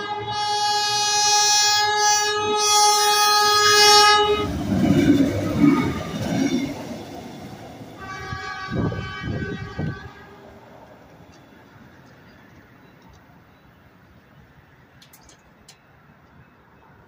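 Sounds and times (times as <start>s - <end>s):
train horn blast: 0.0s - 6.8s, 8.0s - 10.5s
train rumbling past: 0.0s - 15.8s.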